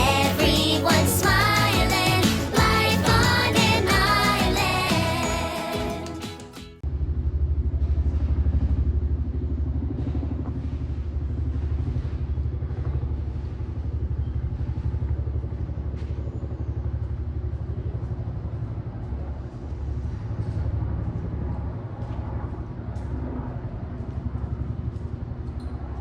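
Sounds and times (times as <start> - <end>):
helicopter rotors beating: 0.0 - 6.6.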